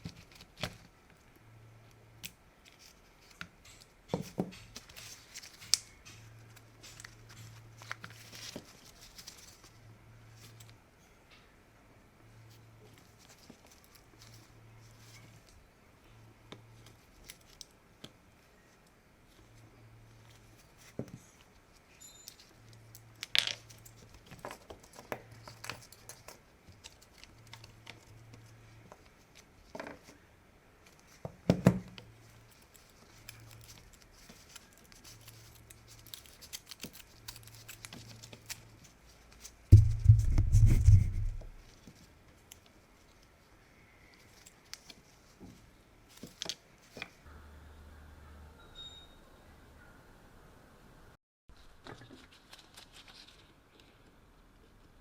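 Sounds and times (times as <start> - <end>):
small parts and tools clicking: 32.2 - 40.2
loud low rumbling noise: 39.8 - 41.6.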